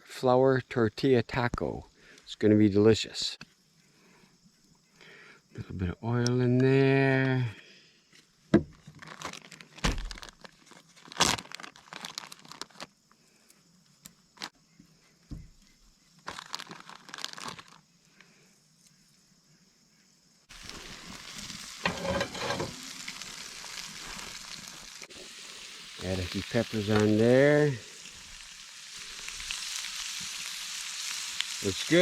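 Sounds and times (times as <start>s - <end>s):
food packaging crinkling: 8.8s - 13.0s, 16.2s - 17.9s, 20.5s - 32.0s
food frying in hot oil: 20.5s - 32.0s.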